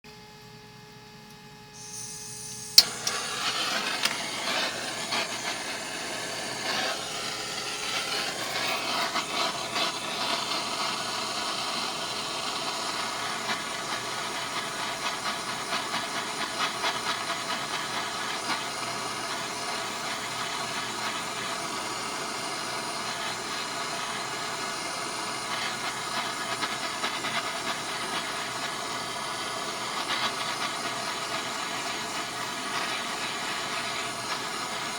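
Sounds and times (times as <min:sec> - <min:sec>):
arc welding crackling: 0:01.8 - 0:34.9.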